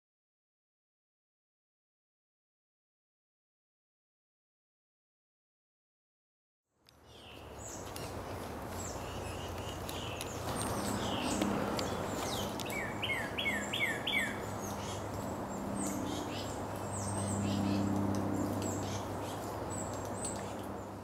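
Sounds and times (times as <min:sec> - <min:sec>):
birds chirping: 0:06.9 - 0:21.0.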